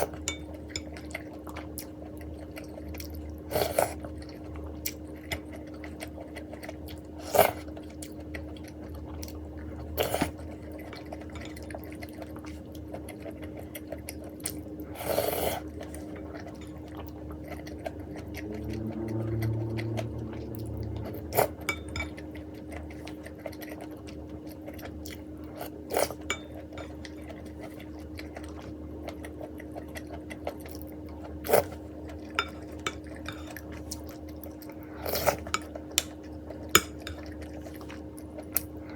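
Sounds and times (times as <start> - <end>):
utensils clinking against bowl: 0.0 - 1.2, 10.2 - 11.9, 15.6 - 17.2, 21.4 - 22.4, 26.0 - 27.5, 32.2 - 33.8, 35.2 - 37.5
person chewing: 0.0 - 38.9
steady low hum: 0.0 - 38.9.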